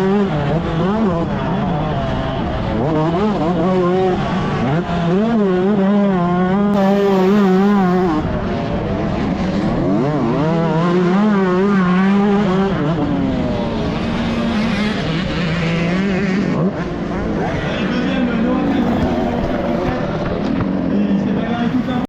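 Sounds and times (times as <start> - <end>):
motocross bike engine: 0.0 - 22.0.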